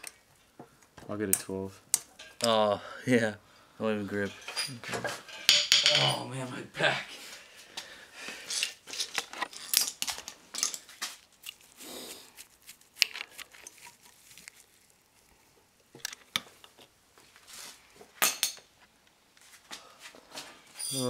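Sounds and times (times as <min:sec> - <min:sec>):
metal hand tools clinking: 0:04.2 - 0:06.3, 0:20.8 - 0:21.0.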